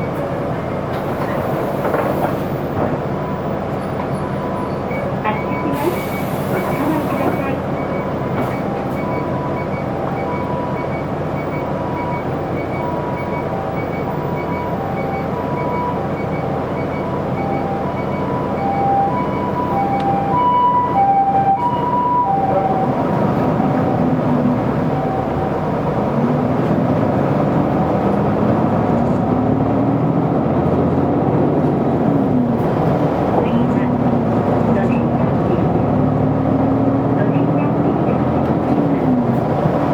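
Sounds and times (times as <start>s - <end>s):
bus diesel engine accelerating: 0.0s - 39.9s
two-tone emergency siren: 4.2s - 26.0s.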